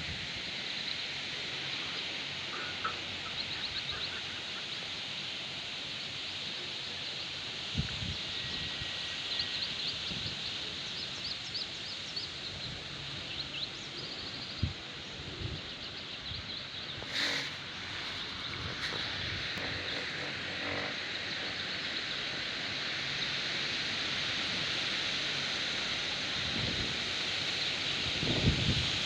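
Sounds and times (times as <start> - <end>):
steady high hiss: 0.0 - 29.0
small birds chirping: 15.4 - 22.5.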